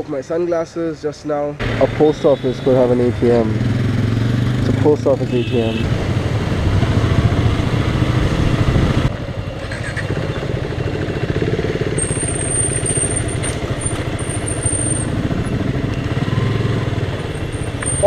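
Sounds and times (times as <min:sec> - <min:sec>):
road and wind noise: 0:00.0 - 0:18.0
motorcycle engine running: 0:03.0 - 0:18.0.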